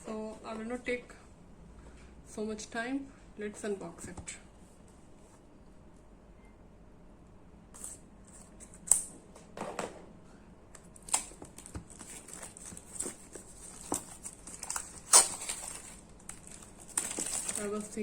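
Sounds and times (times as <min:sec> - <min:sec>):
packaging clicks taps and rustles: 0:10.8 - 0:18.0.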